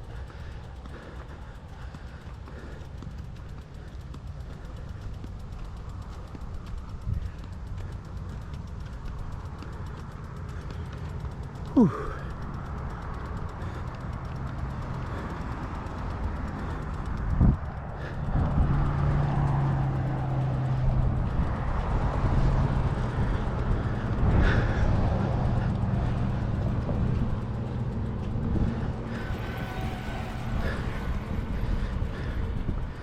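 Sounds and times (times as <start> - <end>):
electric bike motor humming: 0.0 - 33.0
wind rumbling on microphone: 14.8 - 33.0.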